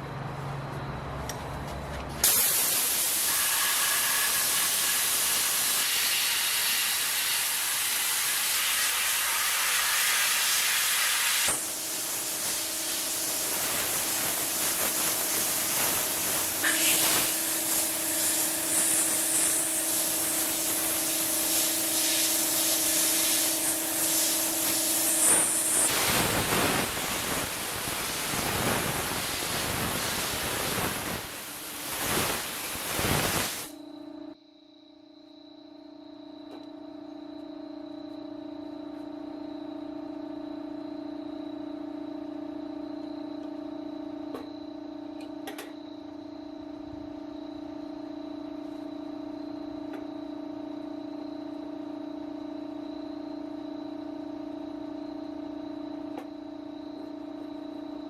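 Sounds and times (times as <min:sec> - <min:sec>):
electric hum with high whine: 0:00.0 - 0:58.0
loud rough hissing: 0:02.2 - 0:33.8.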